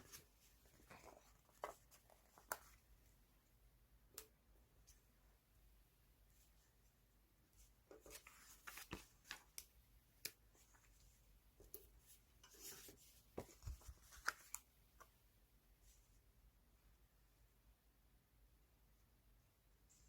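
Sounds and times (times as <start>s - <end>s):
paper rustling: 0.0s - 2.8s, 7.9s - 9.6s, 12.5s - 14.7s.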